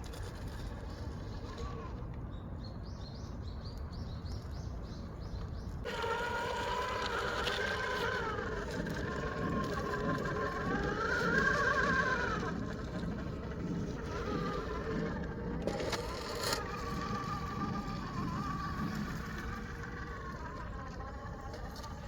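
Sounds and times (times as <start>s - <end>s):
outdoor background noise: 0.0s - 22.0s
electric motor whine: 5.8s - 22.0s.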